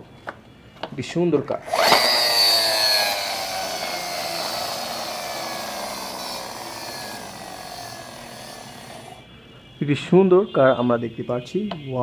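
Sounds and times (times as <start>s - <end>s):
toy car motor whirring: 1.6s - 9.2s.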